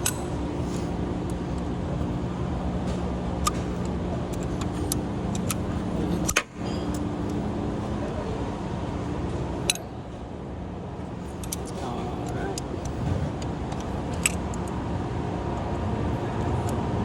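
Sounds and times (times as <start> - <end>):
tools clicking and clinking: 0.0 - 2.1, 2.8 - 7.5, 9.6 - 10.1, 11.2 - 14.8
low mechanical hum: 0.0 - 17.0.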